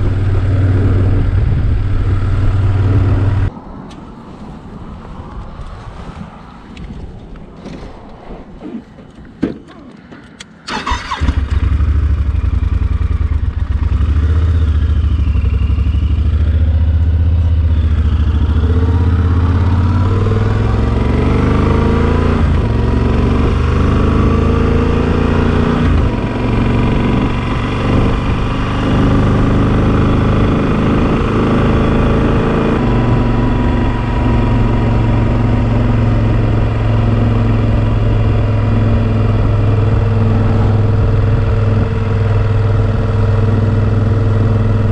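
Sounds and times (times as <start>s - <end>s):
motorcycle engine running: 10.8s - 20.8s, 25.8s - 44.9s.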